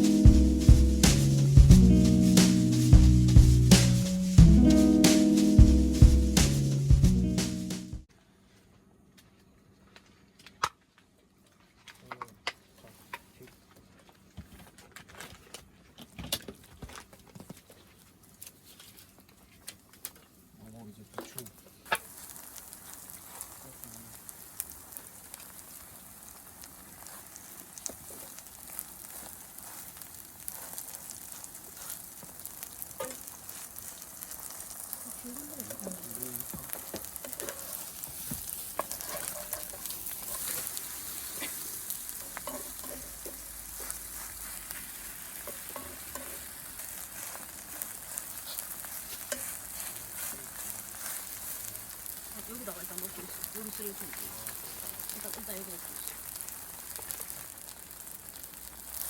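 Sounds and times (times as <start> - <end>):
food sizzling in a hot pan: 0.0 - 8.1, 21.8 - 59.0.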